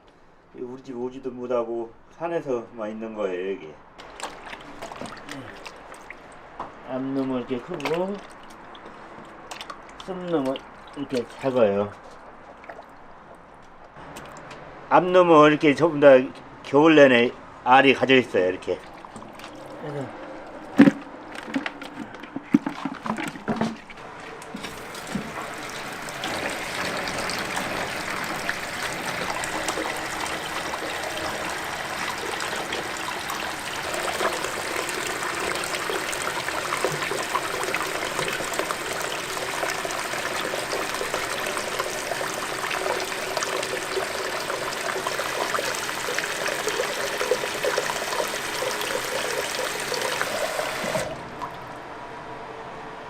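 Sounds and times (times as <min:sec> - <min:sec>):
water running into container: 0:04.0 - 0:13.2, 0:18.4 - 0:51.8.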